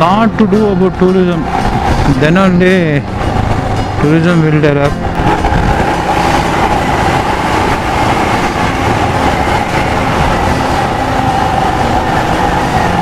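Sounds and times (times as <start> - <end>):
road noise: 0.0 - 13.0
wind rushing over microphone: 1.3 - 13.0
motorcycle engine: 4.9 - 13.0.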